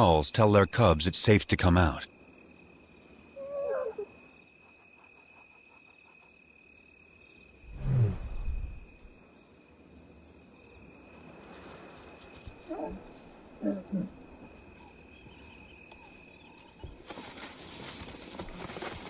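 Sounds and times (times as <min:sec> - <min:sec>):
insects buzzing: 0:02.1 - 0:16.8.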